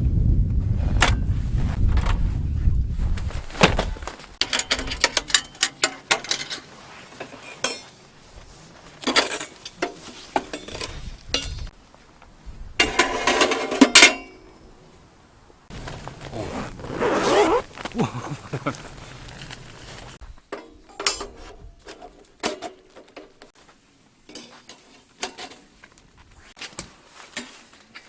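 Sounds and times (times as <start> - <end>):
wind rumble: 0.0 - 5.1, 10.7 - 13.4.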